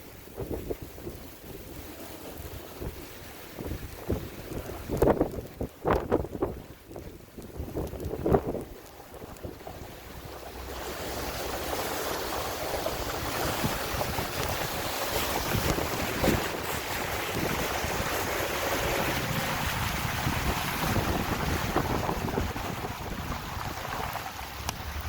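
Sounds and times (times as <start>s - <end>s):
strong wind buffeting microphone: 0.0s - 25.0s.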